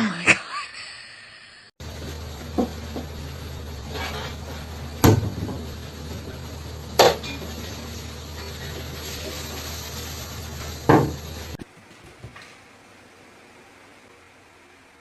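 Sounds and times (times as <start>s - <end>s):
steady low hum: 1.0s - 11.9s
hard objects knocking: 2.4s - 3.2s, 10.8s - 11.2s.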